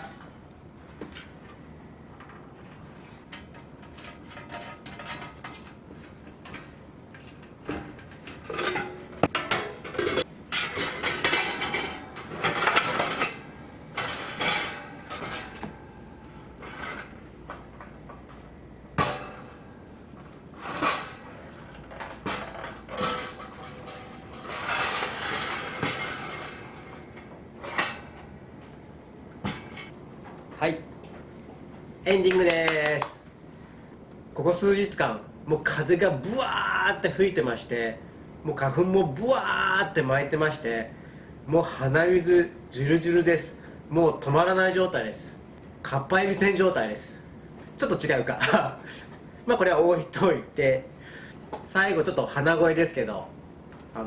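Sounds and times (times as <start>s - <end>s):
metal clanking and scraping: 2.2s - 17.8s, 19.0s - 19.7s, 20.3s - 28.8s.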